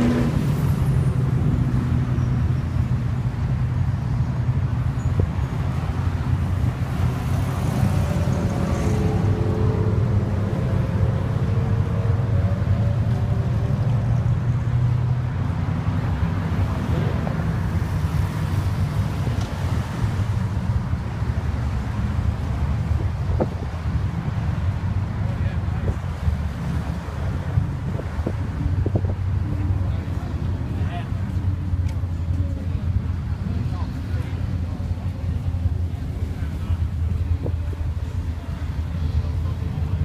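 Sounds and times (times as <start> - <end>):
car engines cruising past: 0.0 - 40.0
wind buffeting microphone: 25.7 - 30.7.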